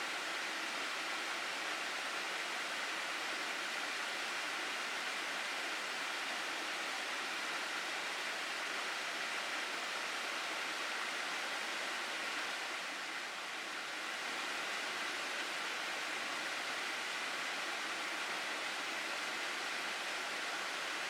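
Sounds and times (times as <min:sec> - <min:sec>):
stream water rushing over rocks: 0:00.0 - 0:21.0.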